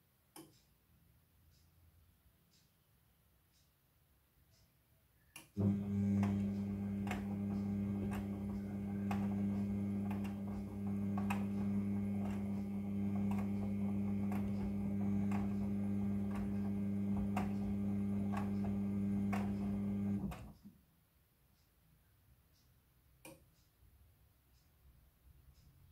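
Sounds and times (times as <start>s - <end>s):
washing machine motor humming: 5.6s - 20.6s.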